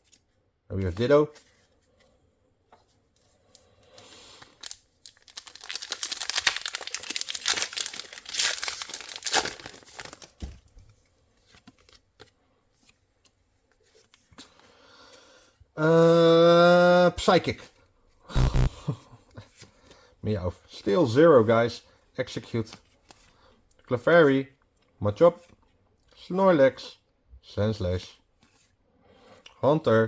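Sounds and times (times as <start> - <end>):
foil wrapper tearing and crinkling: 4.5 - 10.4.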